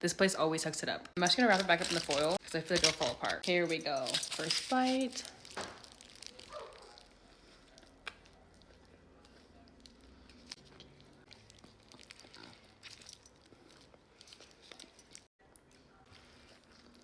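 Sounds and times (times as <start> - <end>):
soft chewing: 5.2 - 17.0.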